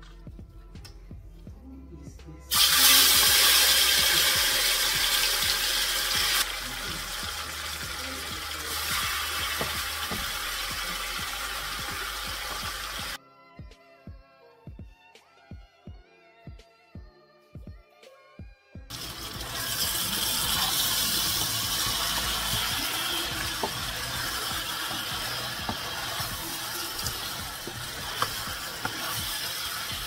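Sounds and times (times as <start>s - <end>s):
chicken sizzling in hot oil: 2.5s - 13.2s, 18.9s - 30.0s.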